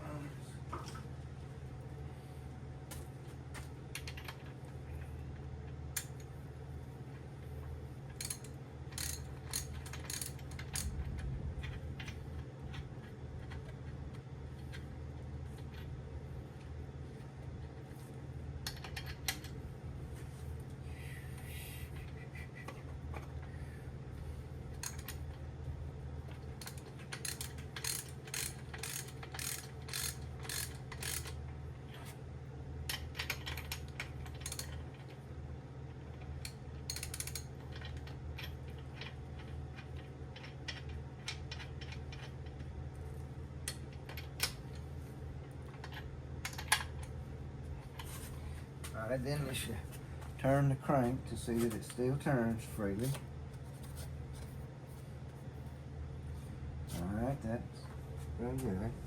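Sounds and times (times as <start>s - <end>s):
steady low hum: 0.0s - 59.0s
ratchet wrench clicking: 8.2s - 10.9s, 26.6s - 31.4s, 34.3s - 34.8s, 36.4s - 37.5s.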